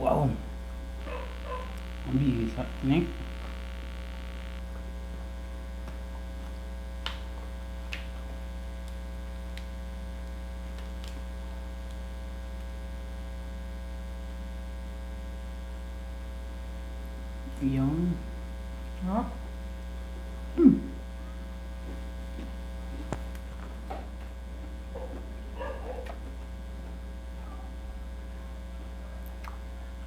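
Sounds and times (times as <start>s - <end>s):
electrical mains hum: 0.0s - 30.0s
faint sharp clicks: 5.8s - 12.0s.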